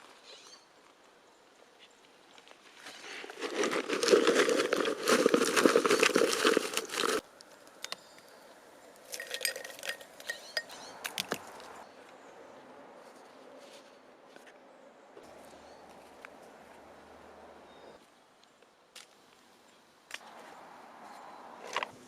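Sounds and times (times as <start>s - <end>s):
peanuts rattling and crinkling: 2.8s - 7.2s, 9.0s - 11.6s.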